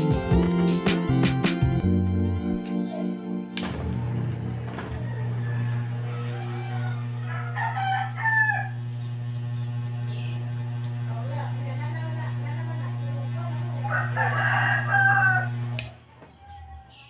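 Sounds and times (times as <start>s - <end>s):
ceiling fan motor hum: 3.6s - 16.0s
rooster calling: 4.6s - 8.9s, 13.8s - 15.6s.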